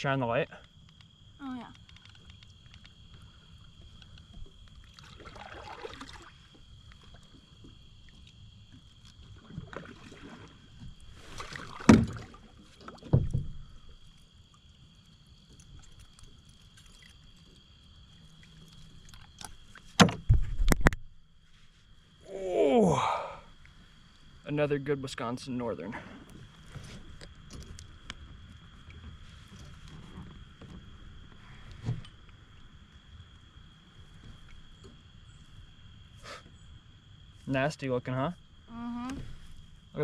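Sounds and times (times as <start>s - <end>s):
water and handling noise: 1.6s - 22.0s, 26.0s - 32.8s
knocks on kayak: 11.8s - 12.3s, 13.0s - 13.6s, 20.0s - 21.0s.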